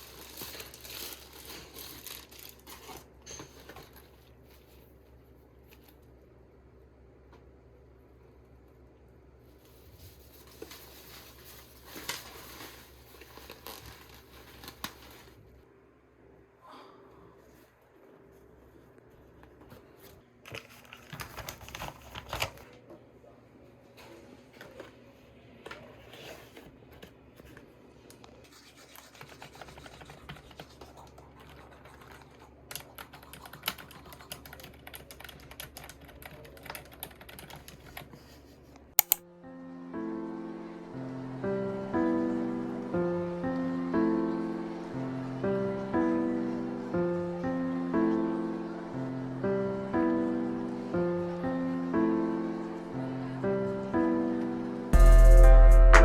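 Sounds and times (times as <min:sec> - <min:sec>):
rustling and crinkling objects: 0:00.0 - 0:06.1, 0:09.4 - 0:15.6, 0:17.5 - 0:22.8, 0:23.9 - 0:28.8
keyboard typing: 0:31.4 - 0:38.1, 0:39.0 - 0:39.2.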